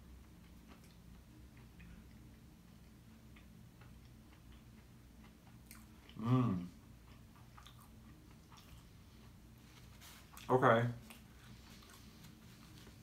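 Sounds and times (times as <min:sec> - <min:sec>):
person chewing: 0:00.2 - 0:13.0
person humming: 0:06.2 - 0:06.7.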